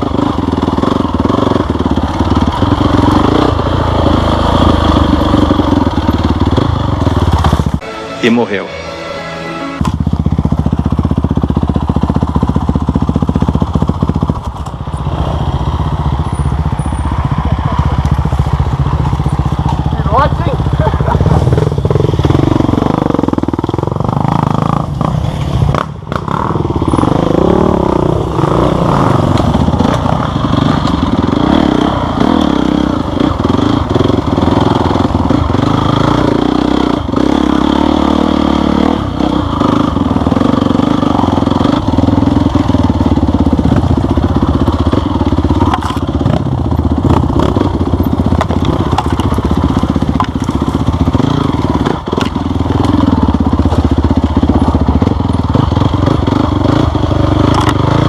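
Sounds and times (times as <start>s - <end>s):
motorcycle engine revving: 0.0s - 8.1s, 8.9s - 58.0s
knocks and clatter: 48.2s - 50.9s.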